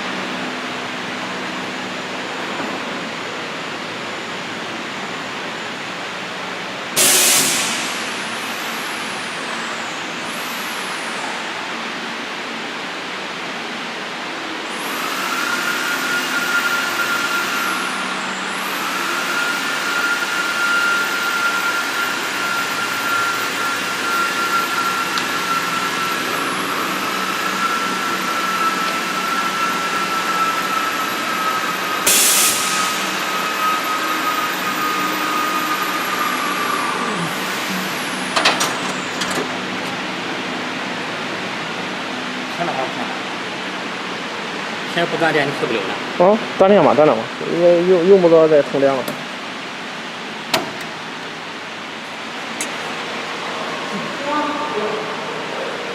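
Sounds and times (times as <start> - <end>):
short loud hiss: 7.0 - 8.1.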